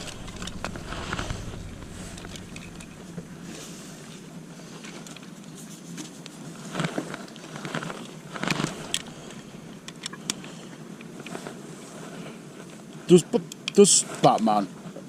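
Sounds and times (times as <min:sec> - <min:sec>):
distant indistinct voices: 0:00.0 - 0:03.7.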